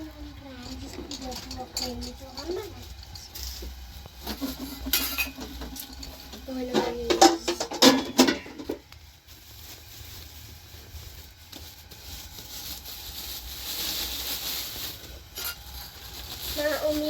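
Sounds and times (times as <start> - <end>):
metal pot and utensils clinking: 0.5 - 8.8, 15.3 - 17.0.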